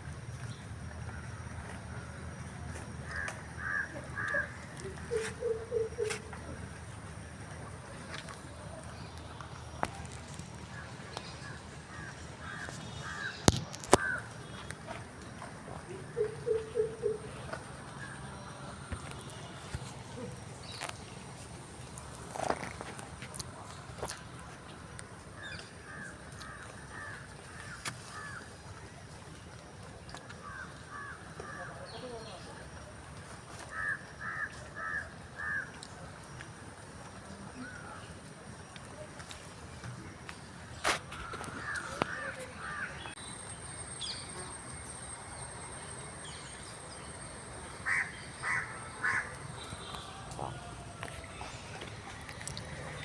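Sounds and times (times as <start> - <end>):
outdoor background hiss: 0.0 - 53.0
bird calling: 3.0 - 6.8, 9.8 - 14.7, 15.8 - 21.0, 46.2 - 53.0
crow cawing: 3.1 - 6.1, 11.4 - 14.3, 33.7 - 35.6, 41.2 - 43.0, 47.8 - 51.5.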